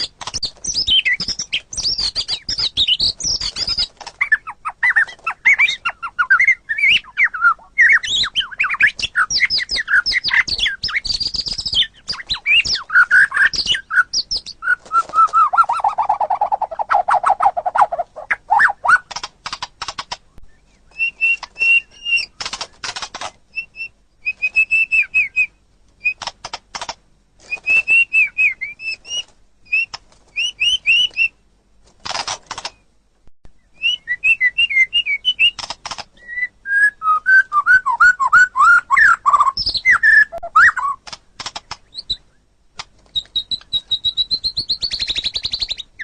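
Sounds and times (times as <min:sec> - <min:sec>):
bird sharp dry clicks: 0:00.0 - 0:05.4, 0:18.9 - 0:23.4, 0:26.0 - 0:28.0, 0:32.0 - 0:32.8, 0:35.4 - 0:36.2, 0:39.5 - 0:42.2
bird singing whistled notes: 0:00.0 - 0:19.1, 0:20.4 - 0:22.4, 0:23.5 - 0:26.2, 0:27.4 - 0:31.4, 0:33.6 - 0:35.6, 0:36.2 - 0:41.0, 0:43.2 - 0:46.0.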